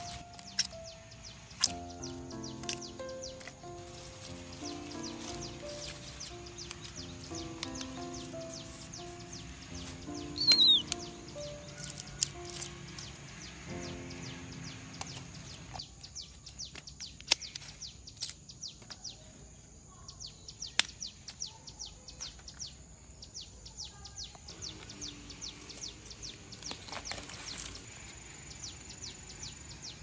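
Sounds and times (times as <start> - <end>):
sharp snaps: 0.0 - 8.3, 16.4 - 19.0, 20.6 - 21.5
small birds chirping: 0.0 - 30.0
high insect whine: 24.5 - 30.0.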